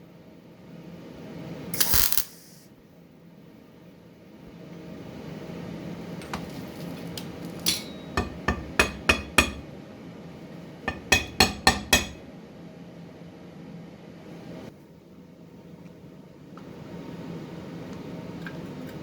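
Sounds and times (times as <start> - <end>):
hammer striking metal: 10.9 - 12.2.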